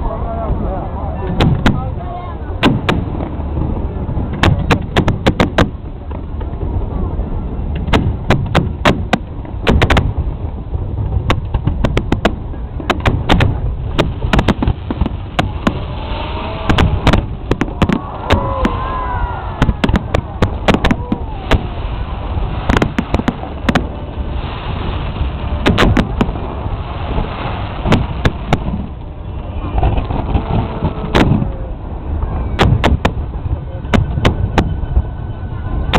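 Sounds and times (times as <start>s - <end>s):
crowd voices: 0.0s - 5.2s, 12.4s - 35.9s
fireworks bangs: 1.3s - 2.0s, 2.6s - 5.9s, 7.8s - 10.3s, 11.1s - 35.1s.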